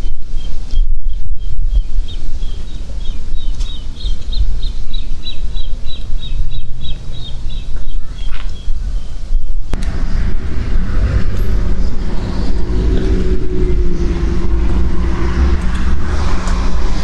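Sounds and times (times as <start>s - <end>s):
small songbird chirping: 0.0s - 9.8s
wind buffeting the microphone: 0.0s - 17.0s.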